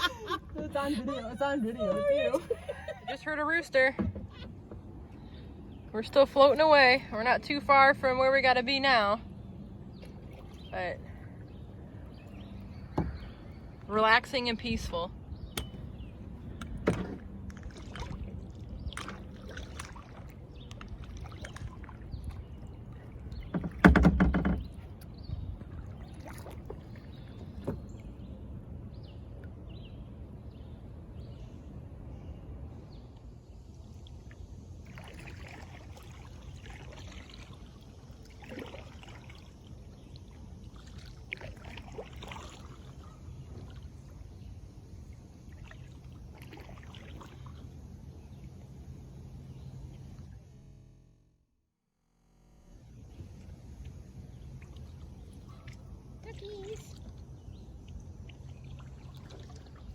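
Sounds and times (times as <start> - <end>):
water lapping against a kayak: 0.0 - 50.6, 52.9 - 59.9
kayak bump: 3.7 - 5.1, 12.8 - 28.1
small knocks and splashes: 16.6 - 28.1, 34.0 - 44.2, 45.4 - 47.9, 53.8 - 59.9.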